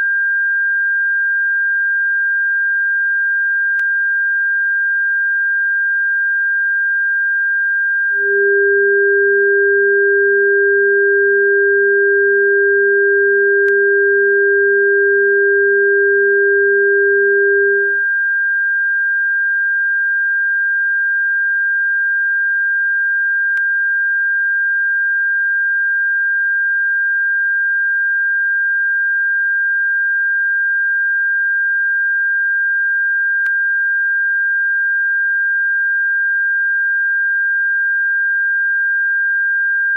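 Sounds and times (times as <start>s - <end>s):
lower pure tone: 7.8s - 18.2s
high-pitched electronic tone: 8.2s - 18.0s.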